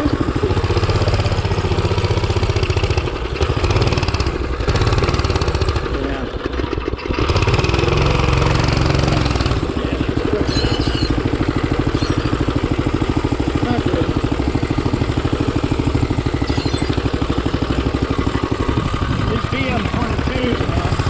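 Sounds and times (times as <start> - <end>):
engine running unevenly: 0.0 - 21.0.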